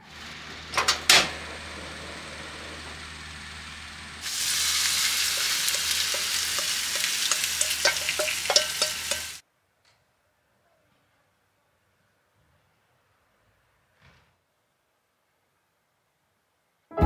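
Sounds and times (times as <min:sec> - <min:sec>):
gas burner flame hissing: 0:00.0 - 0:09.4
cabbage sizzling in hot pan: 0:04.2 - 0:09.4
metal bowl clinking on pan: 0:05.3 - 0:09.4.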